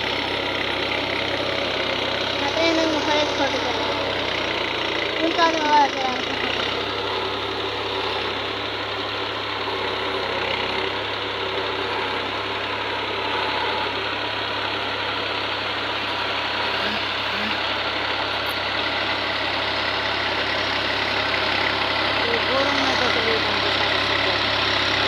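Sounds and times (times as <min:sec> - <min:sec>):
tractor engine running at low revs: 0:00.0 - 0:25.0.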